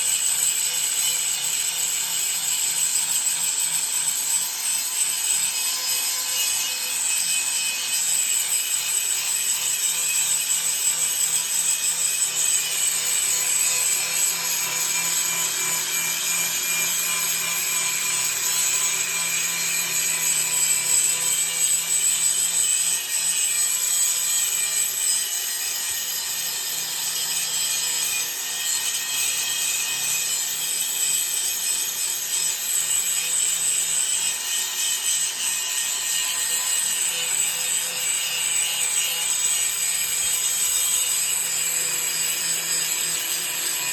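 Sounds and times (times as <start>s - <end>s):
angle grinder grinding steel: 0.0s - 43.9s.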